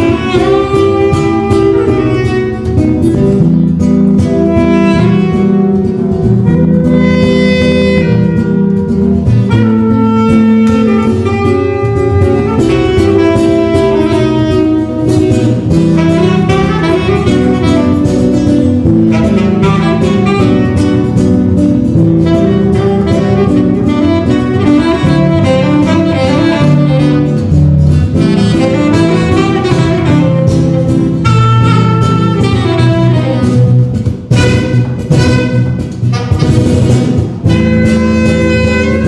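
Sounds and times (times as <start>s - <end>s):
jazz trio melody: 0.0s - 39.0s
low bass notes: 0.0s - 39.0s.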